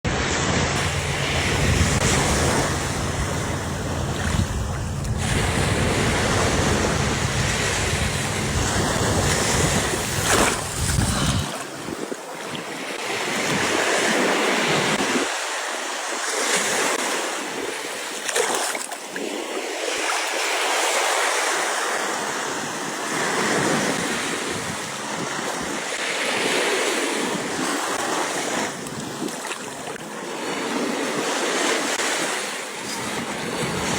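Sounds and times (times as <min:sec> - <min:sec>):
surf washing onto beach: 0:00.1 - 0:33.9
wind buffeting microphone: 0:00.5 - 0:12.1.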